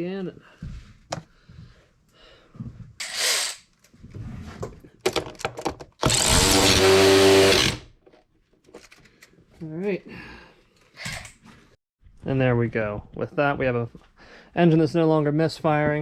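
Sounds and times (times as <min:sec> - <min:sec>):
cordless drill running: 0:06.0 - 0:07.9.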